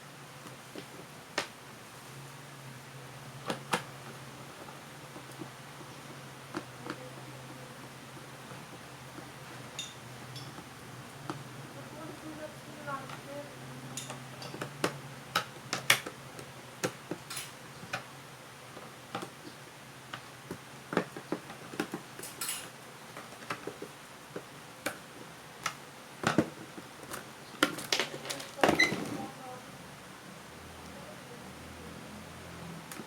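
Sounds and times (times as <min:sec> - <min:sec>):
sharp clicks of plastic parts: 0:14.0 - 0:18.1.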